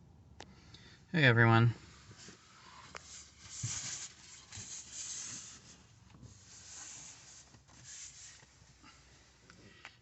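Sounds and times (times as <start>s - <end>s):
rustling and rubbing: 1.9s - 8.8s.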